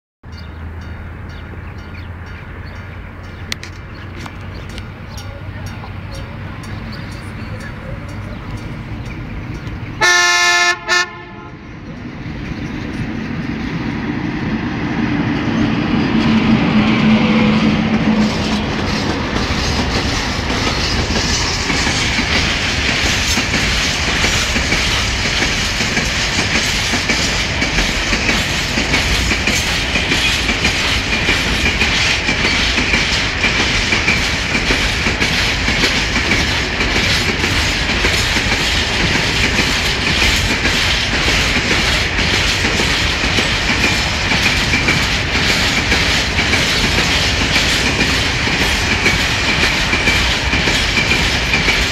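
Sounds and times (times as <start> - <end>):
locomotive rumble and hum: 0.3 - 51.9
wheels clacking over rail joints: 0.4 - 10.2, 11.8 - 51.9
train horn blast: 10.0 - 11.7.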